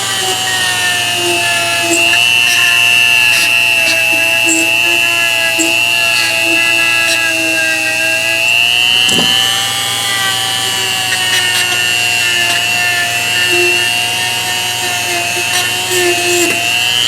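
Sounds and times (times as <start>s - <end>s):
power tool motor whining: 0.0s - 17.0s
brief knock: 9.0s - 9.5s.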